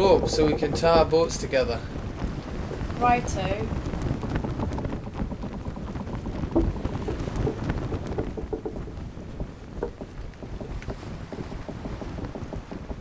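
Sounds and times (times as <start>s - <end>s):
wind rumbling on microphone: 0.0s - 13.0s
light knocks: 6.4s - 13.0s.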